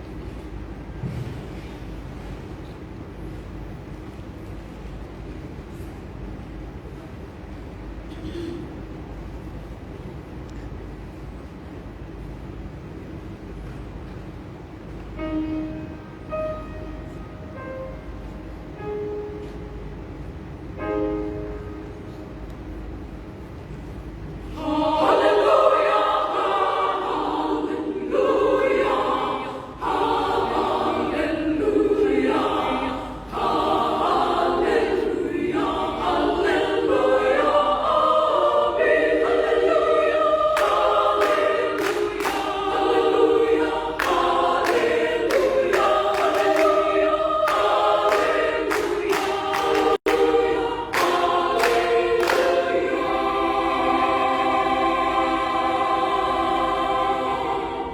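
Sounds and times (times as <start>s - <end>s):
women's choir singing: 24.4s - 57.9s.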